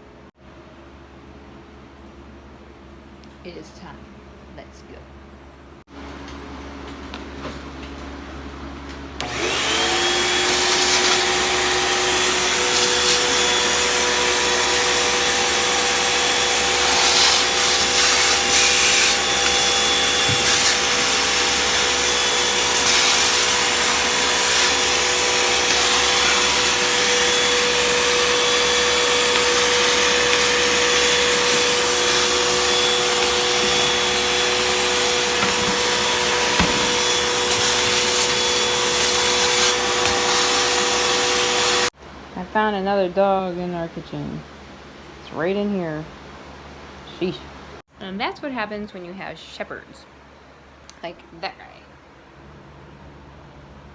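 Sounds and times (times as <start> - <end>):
vacuum cleaner running: 7.0 - 42.0.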